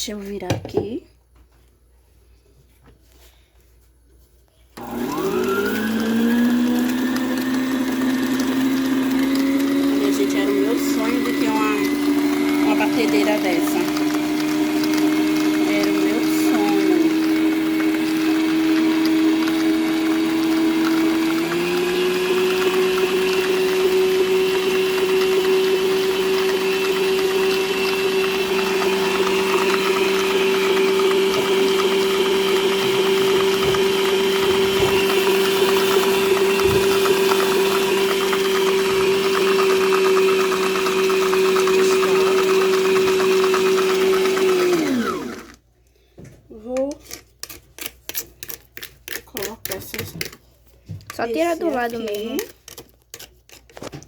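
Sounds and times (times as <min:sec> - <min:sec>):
stand mixer motor humming: 0:04.8 - 0:45.6.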